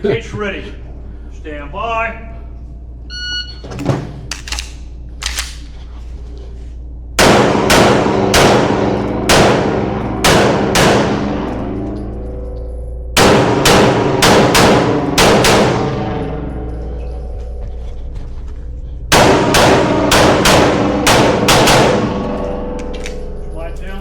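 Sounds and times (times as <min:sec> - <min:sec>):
pistol shots with ringing decay: 0:07.2 - 0:11.7, 0:13.2 - 0:16.5, 0:19.1 - 0:23.3.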